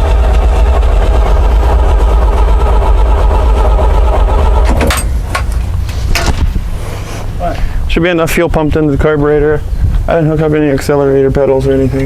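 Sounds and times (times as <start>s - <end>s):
starter cranking truck engine: 0.0s - 8.0s.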